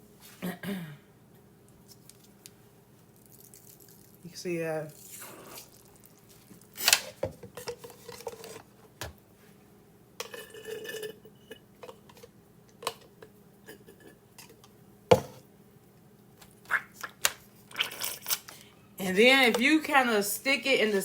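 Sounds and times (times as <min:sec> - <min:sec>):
dishes clinking and knocking: 0:10.2 - 0:15.4.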